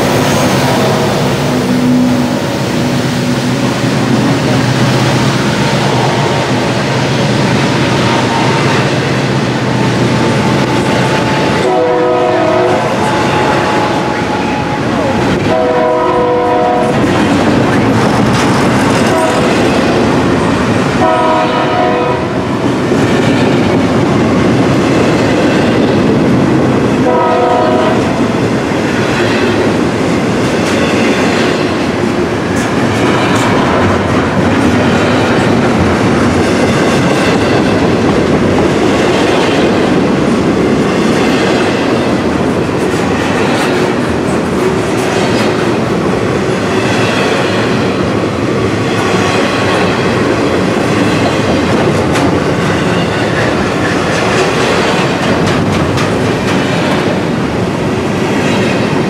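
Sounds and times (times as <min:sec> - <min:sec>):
train wheels clacking over rail joints: 0:02.2 - 0:59.0
locomotive horn blasts: 0:11.6 - 0:17.0, 0:21.0 - 0:22.4, 0:27.0 - 0:28.1.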